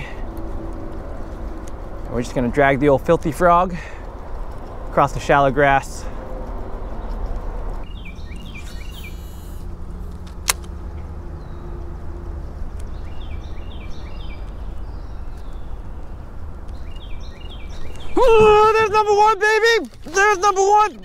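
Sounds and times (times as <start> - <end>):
bird chirping: 6.8 - 10.1, 12.5 - 21.0
sharp click: 10.1 - 10.8.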